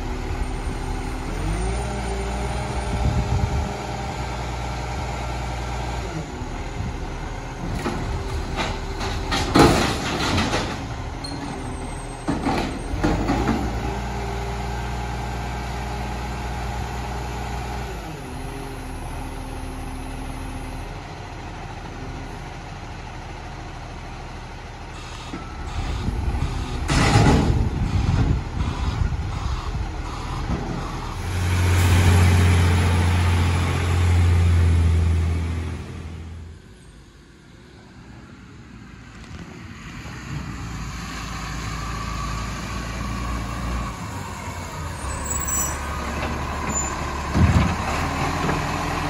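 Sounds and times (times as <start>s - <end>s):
diesel engine running: 0.0s - 36.7s.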